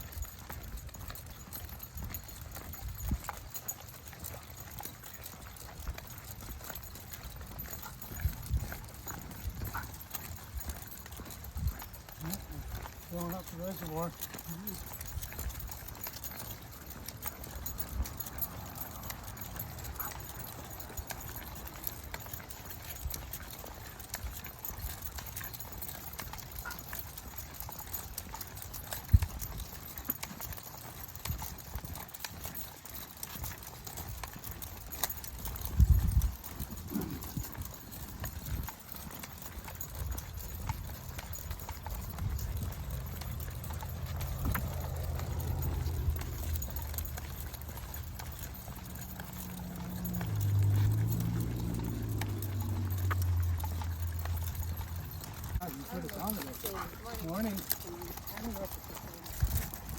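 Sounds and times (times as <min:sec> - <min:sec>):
footsteps on dirt trail: 0:04.2 - 0:13.4, 0:30.8 - 0:59.9.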